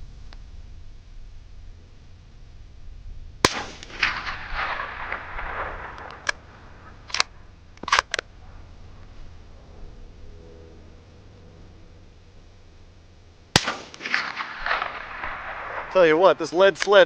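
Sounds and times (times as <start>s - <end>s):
suppressed rifle shot: 3.4s - 8.4s, 13.5s - 17.0s
rifle bolt clicks: 7.1s - 8.2s.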